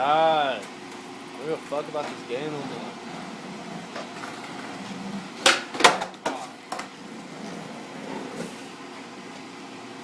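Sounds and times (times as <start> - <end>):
skateboard clattering on hard ground: 3.8 - 8.5.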